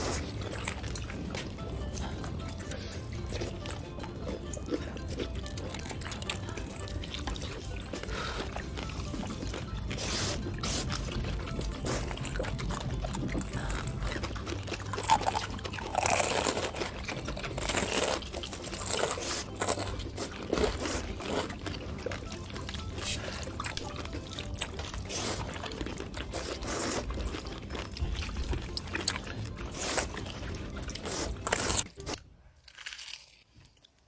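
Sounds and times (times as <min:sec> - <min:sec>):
wet mouth noises and slurping: 0:00.0 - 0:32.2.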